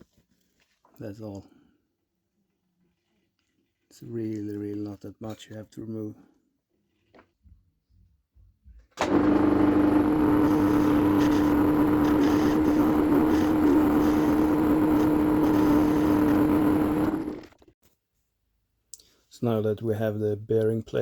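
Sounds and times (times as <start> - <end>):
metal lathe humming: 9.0 - 17.6.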